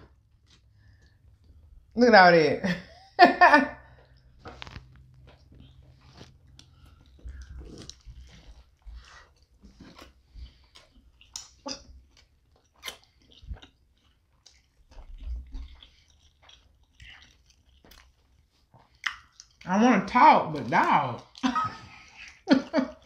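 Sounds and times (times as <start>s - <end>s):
soft crunches of chewing: 0.1s - 1.9s, 3.9s - 19.7s, 21.1s - 23.0s
wet mouth smacks chewing: 4.1s - 19.6s.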